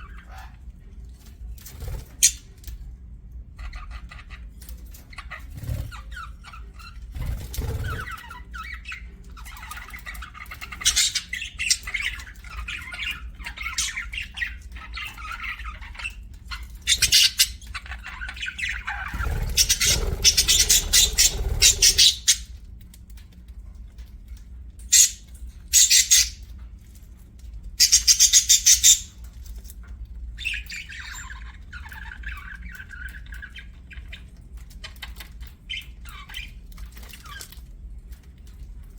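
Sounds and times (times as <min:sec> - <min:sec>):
budgies chattering and warbling: 0:00.0 - 0:00.8, 0:03.6 - 0:22.6, 0:24.8 - 0:26.5, 0:27.8 - 0:29.2, 0:30.4 - 0:37.6
harsh bird squawks: 0:18.6 - 0:22.5.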